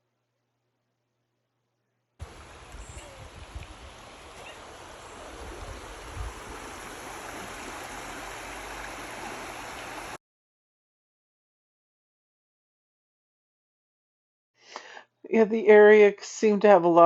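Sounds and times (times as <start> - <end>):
river water rushing over rocks: 2.2 - 10.2.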